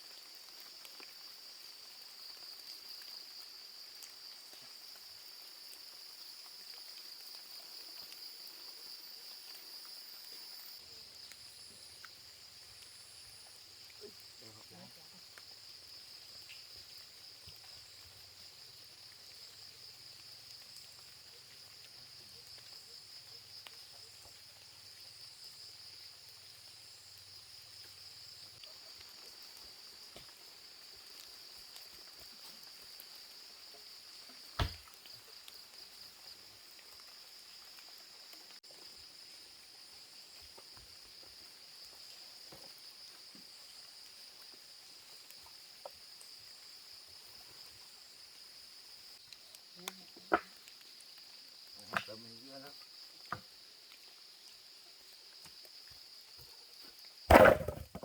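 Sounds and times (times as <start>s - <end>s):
insects chirring: 0.0s - 58.0s
sharp knock: 34.6s - 34.8s, 57.3s - 58.0s.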